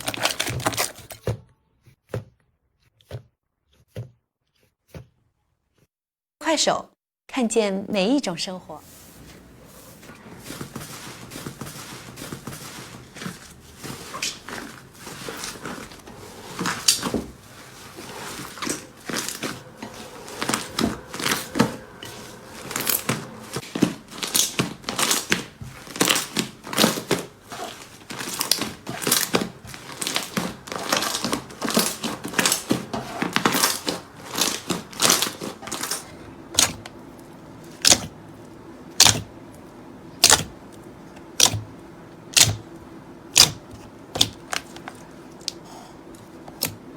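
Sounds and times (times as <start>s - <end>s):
slime being squeezed: 37.8s - 38.1s, 39.0s - 39.3s, 41.4s - 41.6s.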